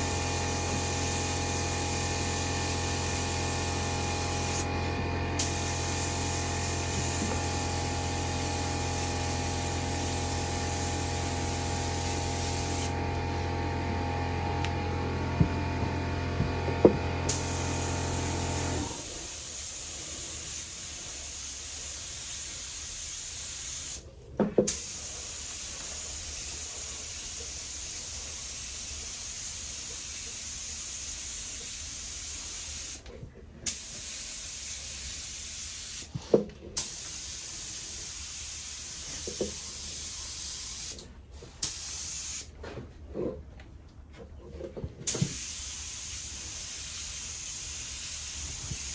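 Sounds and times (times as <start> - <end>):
paint spray gun hissing: 0.0 - 13.8, 17.3 - 24.0, 33.6 - 36.1, 36.8 - 41.0, 41.6 - 42.5, 45.1 - 48.9.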